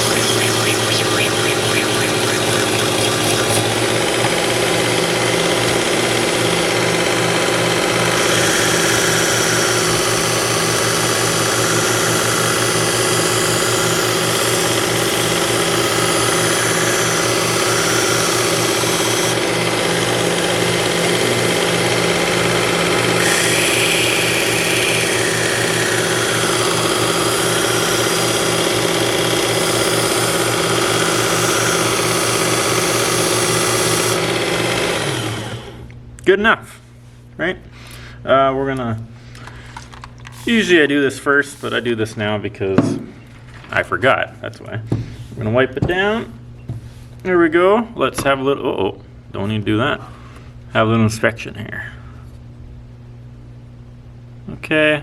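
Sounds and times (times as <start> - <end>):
belt sharpener motor hum: 0.0 - 36.0.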